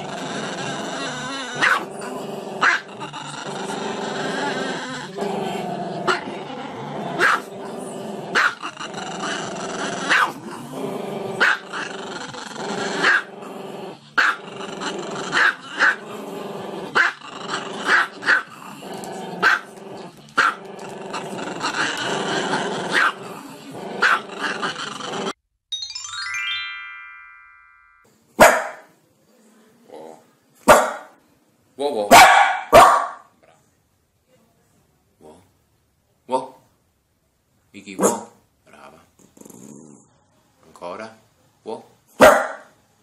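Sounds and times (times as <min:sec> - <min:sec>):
dog barking: 0:01.6 - 0:01.9, 0:02.6 - 0:02.8, 0:07.2 - 0:07.5, 0:08.4 - 0:08.6, 0:10.1 - 0:10.4, 0:11.4 - 0:11.6, 0:14.2 - 0:14.4, 0:19.4 - 0:19.6, 0:22.9 - 0:23.2, 0:28.4 - 0:28.9, 0:30.7 - 0:31.1, 0:32.1 - 0:33.3, 0:38.0 - 0:38.4, 0:42.2 - 0:42.7.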